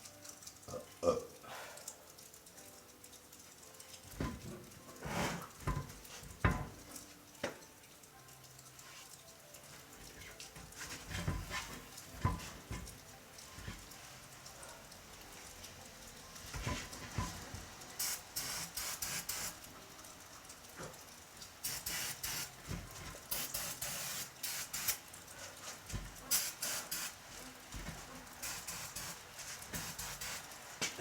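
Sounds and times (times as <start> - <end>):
aerosol can spraying: 18.0 - 19.6, 21.6 - 22.6, 23.3 - 25.0, 26.3 - 27.2, 27.8 - 31.0.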